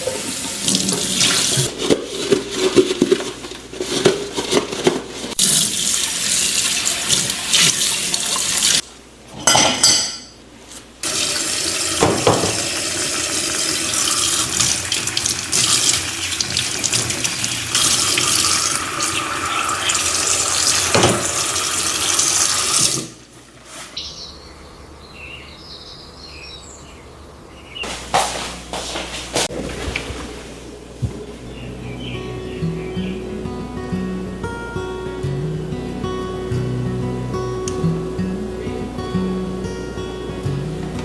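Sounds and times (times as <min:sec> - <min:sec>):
tap water running into sink: 0:00.0 - 0:01.7, 0:05.4 - 0:08.8, 0:11.0 - 0:23.2.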